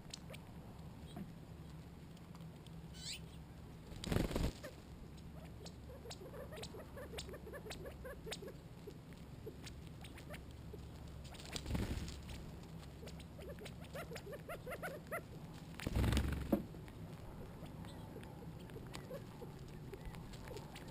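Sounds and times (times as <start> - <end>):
sharp pecking ticks: 5.1 - 11.6, 12.6 - 15.3, 16.8 - 20.9.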